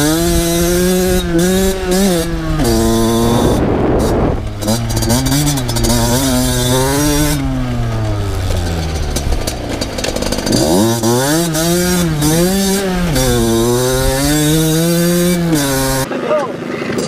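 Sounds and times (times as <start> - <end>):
two-stroke motorbike engine revving: 0.0 - 17.0.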